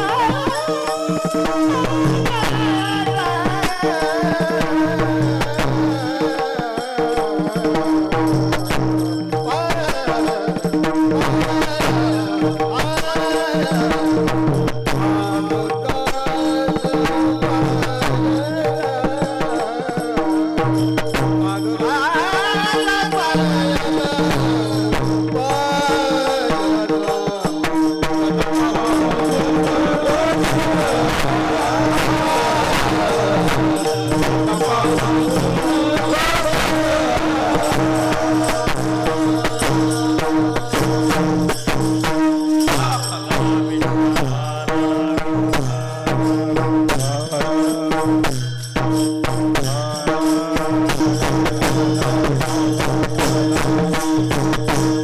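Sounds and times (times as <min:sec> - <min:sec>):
devotional singing: 0:00.0 - 0:48.5, 0:49.2 - 0:55.0
percussion strokes: 0:00.0 - 0:55.0
held drone: 0:28.9 - 0:41.4.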